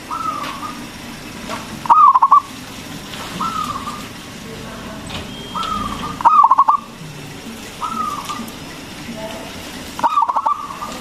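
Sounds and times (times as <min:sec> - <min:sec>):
dove cooing: 0:00.0 - 0:01.0, 0:01.8 - 0:02.6, 0:03.2 - 0:04.8, 0:05.4 - 0:08.7, 0:10.0 - 0:11.0.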